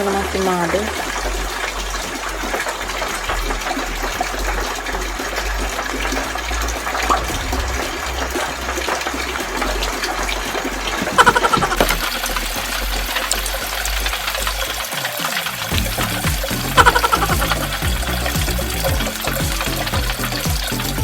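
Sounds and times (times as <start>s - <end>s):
low hum: 0.0s - 14.8s
water running: 0.0s - 21.0s.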